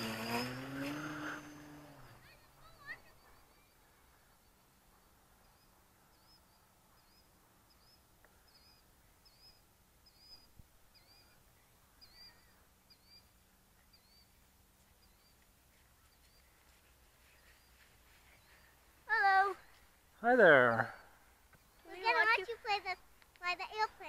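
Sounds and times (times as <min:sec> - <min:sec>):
small bird chirping: 0:00.0 - 0:18.8.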